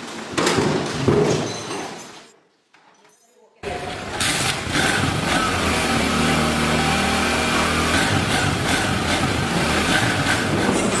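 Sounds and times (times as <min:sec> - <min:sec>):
motorcycle engine running: 0:03.7 - 0:11.0.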